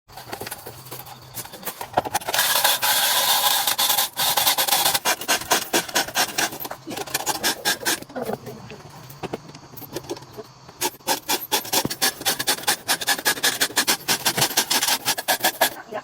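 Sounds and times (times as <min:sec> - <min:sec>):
rasping on metal: 0:01.0 - 0:08.3, 0:10.8 - 0:15.9
quick scraping strokes: 0:01.3 - 0:08.1, 0:10.8 - 0:15.8.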